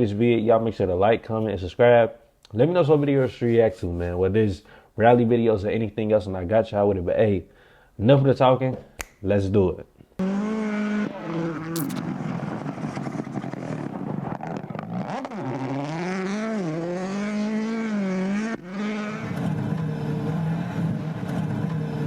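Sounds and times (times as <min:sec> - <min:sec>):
rally car engine revving: 0:10.2 - 0:22.0.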